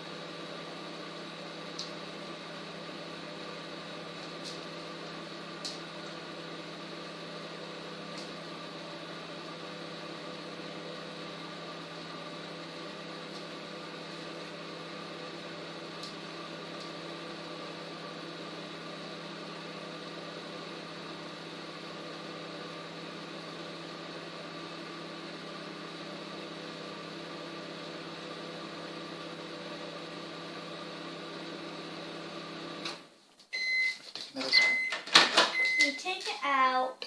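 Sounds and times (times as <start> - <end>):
microwave oven humming: 0.0 - 36.2.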